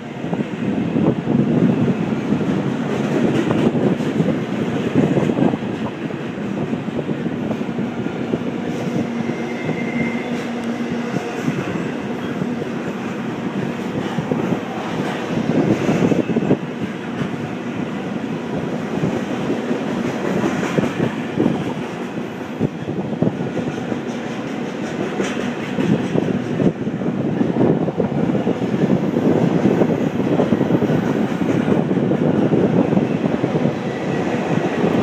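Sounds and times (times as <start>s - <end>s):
train wheels rumbling on rail: 0.0s - 35.0s
wheels clacking over rail joints: 18.8s - 26.8s.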